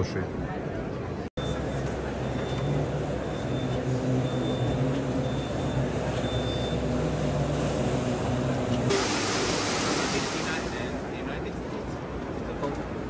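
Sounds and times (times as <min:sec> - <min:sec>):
exhibition hall noise: 0:00.0 - 0:09.1, 0:09.9 - 0:13.0
low machine hum: 0:01.4 - 0:11.2
bright hissy noise: 0:08.9 - 0:11.1.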